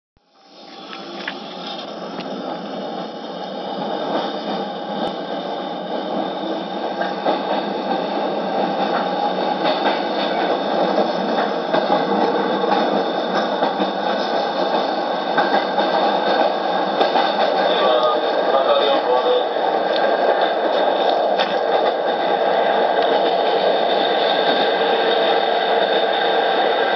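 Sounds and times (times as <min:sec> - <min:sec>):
electric train wheels rumbling: 0:00.2 - 0:26.9.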